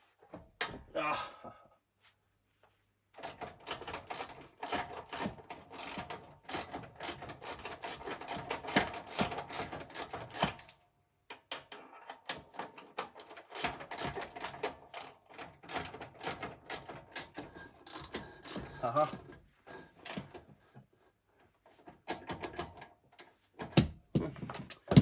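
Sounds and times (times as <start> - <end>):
ratchet wrench clicking: 3.2 - 10.7.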